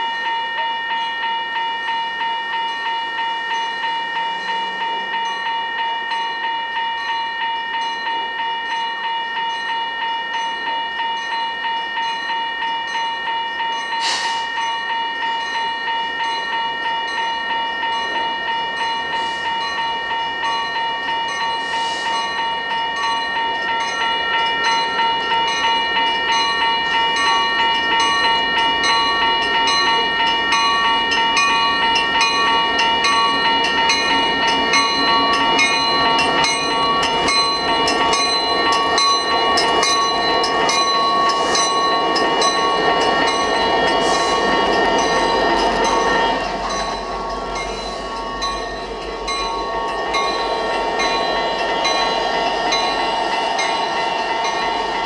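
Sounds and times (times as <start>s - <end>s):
crossing warning bell ringing: 0.0s - 55.0s
freight train rumbling and clattering: 22.7s - 55.0s.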